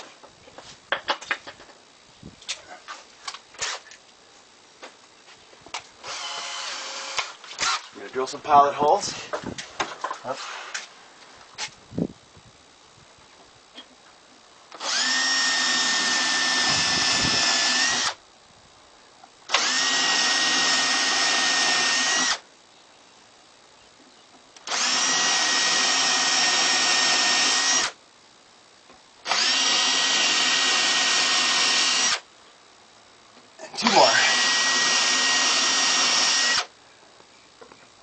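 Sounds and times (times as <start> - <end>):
power drill boring into wood: 6.0 - 7.9, 14.8 - 18.2, 19.5 - 22.4, 24.6 - 28.0, 29.3 - 32.2, 33.8 - 36.7.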